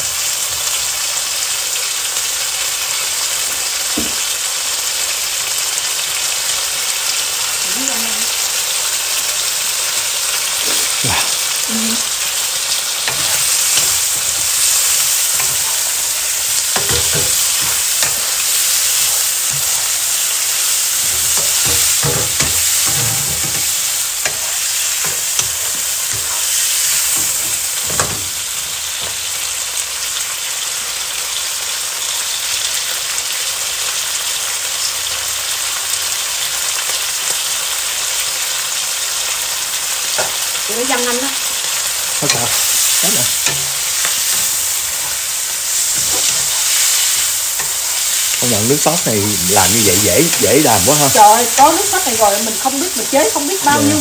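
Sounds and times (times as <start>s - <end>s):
meat and onions sizzling: 0.0s - 54.0s
spatula scraping a wok: 12.7s - 29.3s, 41.7s - 50.4s.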